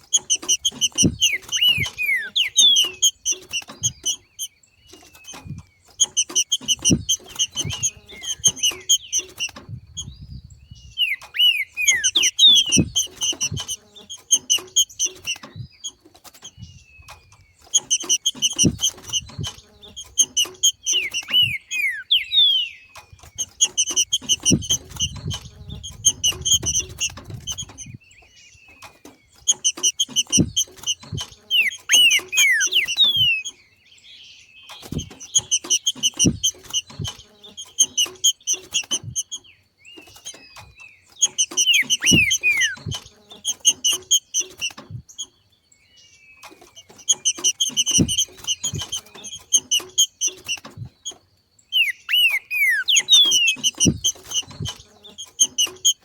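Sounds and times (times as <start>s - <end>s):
bird chattering: 0.0s - 33.6s, 34.6s - 45.4s, 46.4s - 56.0s
downward-sliding bird whistles: 0.2s - 4.5s, 5.2s - 15.8s, 17.7s - 28.0s, 29.5s - 33.6s, 40.2s - 45.0s, 51.7s - 56.0s
soft low thumps: 5.4s - 11.0s, 16.5s - 20.7s, 23.2s - 28.0s, 53.6s - 54.9s.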